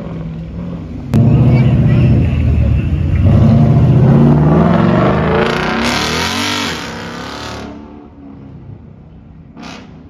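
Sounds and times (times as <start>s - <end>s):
car engine revving accelerating: 3.2s - 7.8s.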